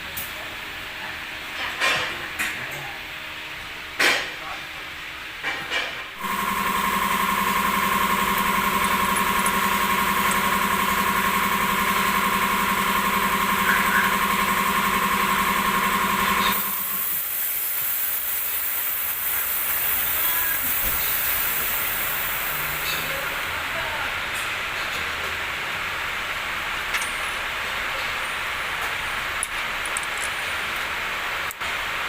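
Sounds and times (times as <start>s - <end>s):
machine motor humming: 6.2s - 17.2s
steady hiss: 16.8s - 23.2s.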